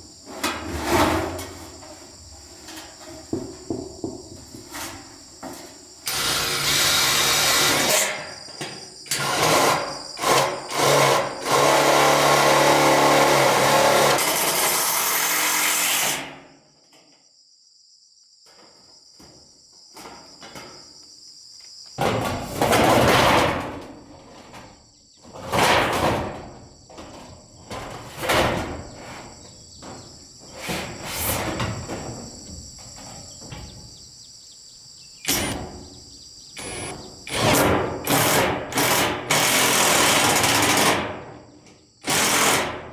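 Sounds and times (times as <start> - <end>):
insects chirping: 0.0 - 15.6, 16.5 - 22.6, 24.4 - 42.6
power tool running: 6.1 - 8.0, 9.1 - 14.5, 35.3 - 35.7, 36.6 - 40.8.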